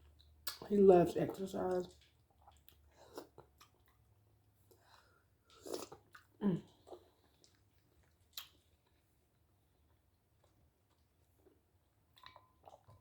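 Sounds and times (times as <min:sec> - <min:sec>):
person chewing: 0:00.4 - 0:00.7, 0:01.3 - 0:09.1, 0:10.4 - 0:11.6, 0:12.2 - 0:13.0.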